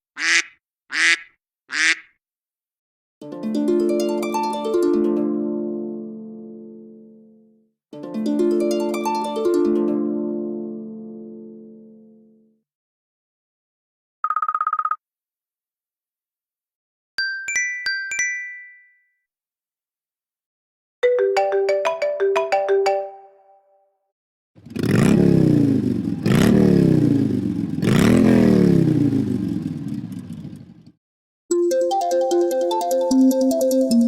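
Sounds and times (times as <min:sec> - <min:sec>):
short melodic ringtone phrase: 0:21.0 - 0:23.6, 0:31.5 - 0:34.0.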